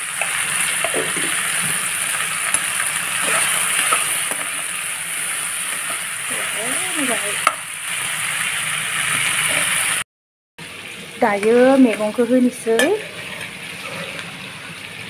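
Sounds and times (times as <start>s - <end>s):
food sizzling in a pan: 0.0s - 10.0s, 10.6s - 15.0s
metal spatula scraping: 2.5s - 4.8s, 12.7s - 14.8s.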